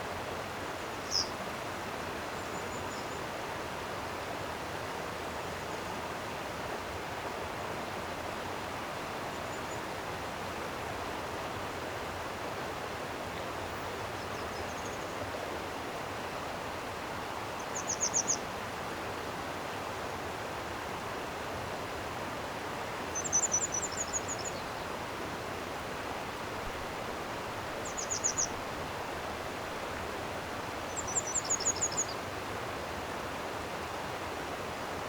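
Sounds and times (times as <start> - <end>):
stream flowing: 0.0 - 35.0
bird trilling: 27.9 - 28.6.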